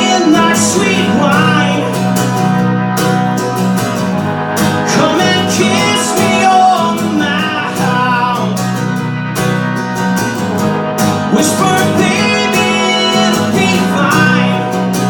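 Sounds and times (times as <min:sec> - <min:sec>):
person singing: 0:00.0 - 0:02.6, 0:04.7 - 0:08.9, 0:11.2 - 0:15.0
strummed acoustic guitar: 0:00.0 - 0:15.0.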